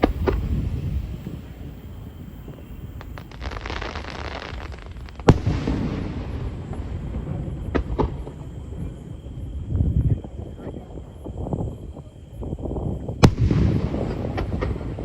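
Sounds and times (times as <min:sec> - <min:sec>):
small firework pops: 0:00.0 - 0:01.4, 0:02.2 - 0:08.9, 0:13.1 - 0:15.0
fireworks crackling: 0:00.0 - 0:15.0
loud firework bang: 0:02.5 - 0:08.4, 0:13.2 - 0:15.0.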